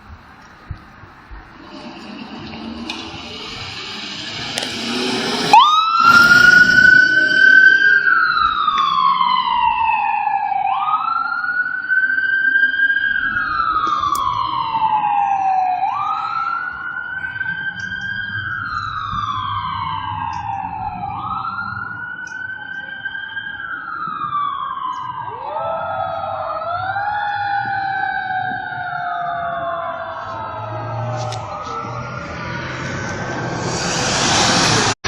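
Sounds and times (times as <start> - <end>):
rushing noise: 1.0 - 9.0, 30.8 - 35.0
fire engine siren wailing: 1.4 - 35.0.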